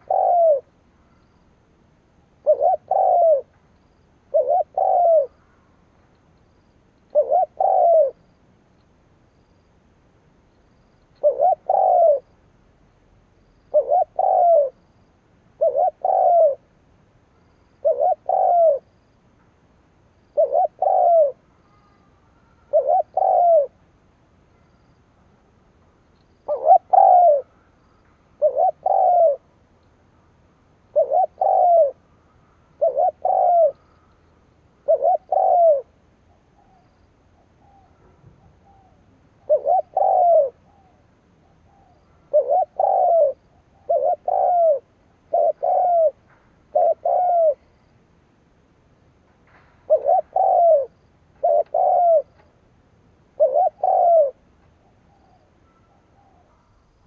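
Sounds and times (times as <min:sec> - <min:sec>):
dove cooing: 0:00.0 - 0:01.2, 0:02.4 - 0:03.6, 0:04.3 - 0:05.6, 0:07.1 - 0:08.3, 0:11.1 - 0:12.3, 0:13.7 - 0:14.8, 0:15.5 - 0:16.7, 0:17.8 - 0:18.9, 0:20.3 - 0:23.8, 0:26.5 - 0:27.7, 0:28.4 - 0:29.6, 0:30.9 - 0:34.1, 0:34.8 - 0:47.8, 0:49.8 - 0:52.5, 0:53.2 - 0:57.0.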